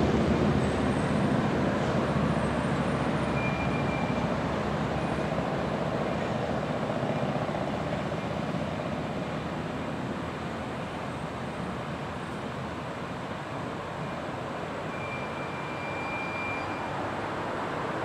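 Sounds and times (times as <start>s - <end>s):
train rumbling past: 0.0s - 18.0s
high squeal: 3.2s - 4.3s, 14.9s - 17.1s.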